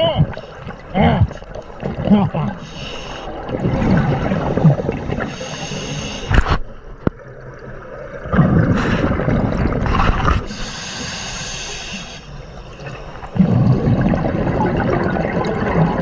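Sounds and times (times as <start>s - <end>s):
scuba exhaled bubbles: 0.0s - 16.0s
breathing through a regulator: 2.6s - 3.5s, 4.2s - 6.4s, 10.4s - 13.4s.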